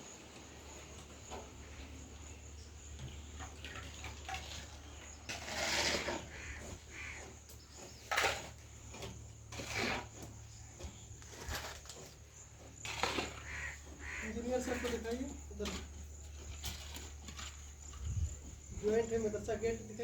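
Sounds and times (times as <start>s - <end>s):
bird calling: 6.0s - 8.1s, 13.1s - 15.4s.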